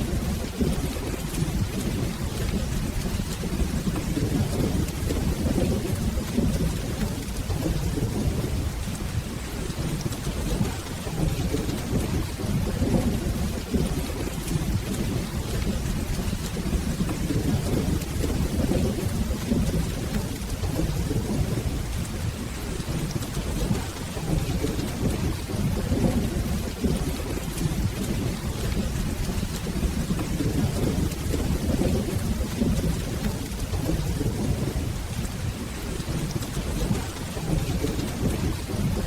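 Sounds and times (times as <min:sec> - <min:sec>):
rolling thunder rumble: 0:00.0 - 0:39.0
steady rain: 0:00.0 - 0:39.0.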